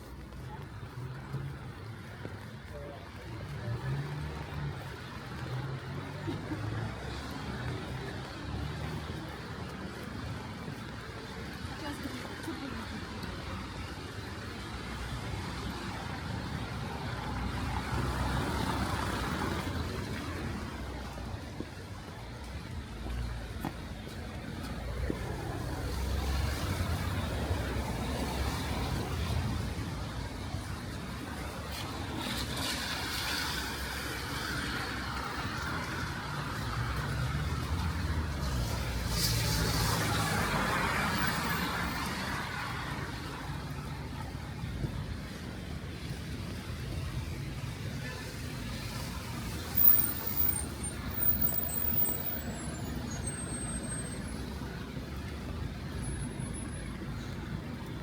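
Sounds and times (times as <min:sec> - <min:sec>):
cars rumbling: 0:00.0 - 0:58.0
traffic on wet street: 0:00.0 - 0:58.0
tyre hiss on wet road: 0:38.4 - 0:43.3.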